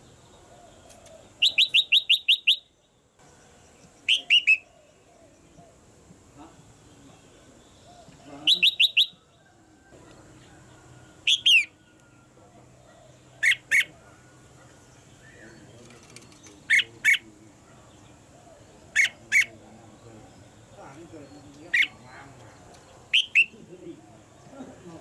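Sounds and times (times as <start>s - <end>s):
bulbul calling: 0.0s - 9.4s, 10.0s - 24.8s.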